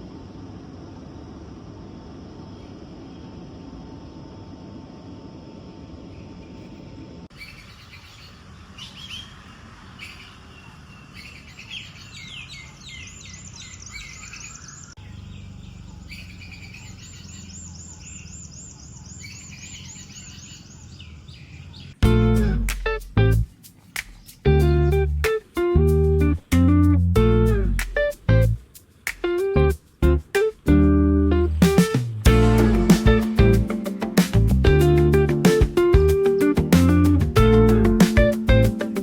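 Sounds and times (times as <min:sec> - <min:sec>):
low background noise: 0:00.0 - 0:25.8
birds singing and trilling: 0:06.0 - 0:22.5, 0:23.5 - 0:26.6, 0:32.4 - 0:39.0.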